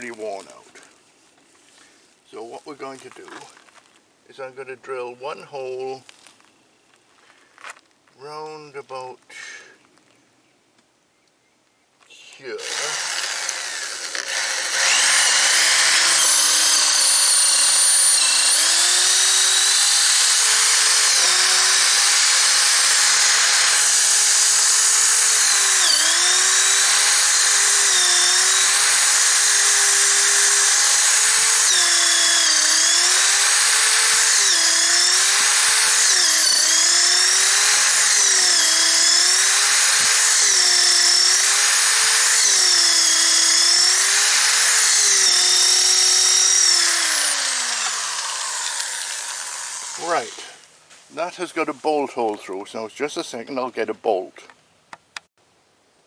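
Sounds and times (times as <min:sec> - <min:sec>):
electric drill boring through wood: 0:12.6 - 0:50.7.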